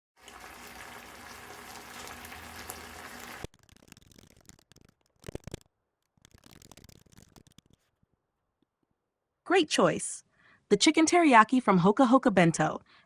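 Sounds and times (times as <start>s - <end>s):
food sizzling in a frying pan: 0.2s - 4.6s
scattered clicks: 3.4s - 7.9s.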